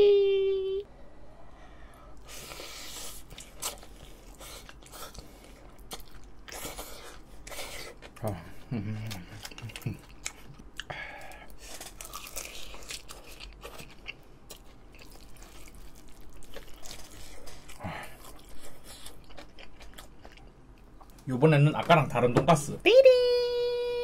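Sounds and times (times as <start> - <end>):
wet chewing and mouth smacks: 3.2 - 8.2.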